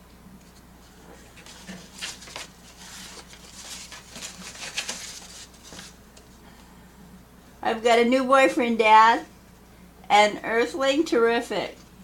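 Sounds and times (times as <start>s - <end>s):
paper cards rustling and sliding: 0.4s - 6.4s.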